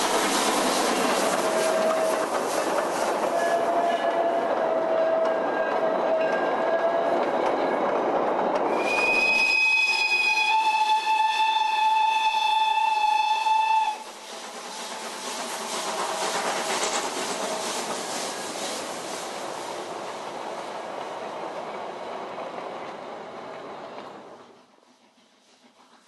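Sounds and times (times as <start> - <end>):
moving train wheel clatter: 0.0 - 26.0
train whistle: 1.5 - 2.2, 3.3 - 7.3, 8.7 - 14.1.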